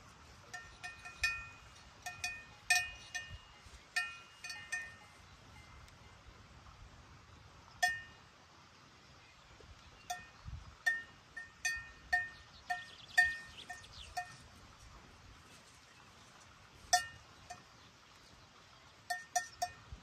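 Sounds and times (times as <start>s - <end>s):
metal cowbell clanking: 0.4s - 6.2s, 7.8s - 8.3s, 10.1s - 14.5s, 16.9s - 17.8s, 19.1s - 20.0s.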